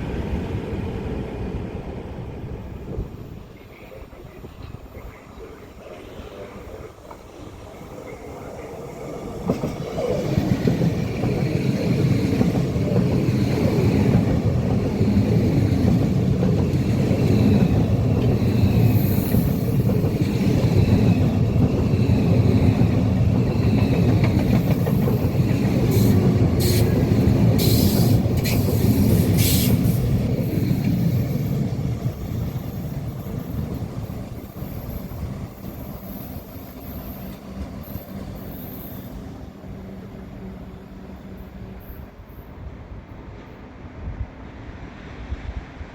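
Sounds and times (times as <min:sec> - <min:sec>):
train wheels rumbling on track: 0:00.0 - 0:45.9.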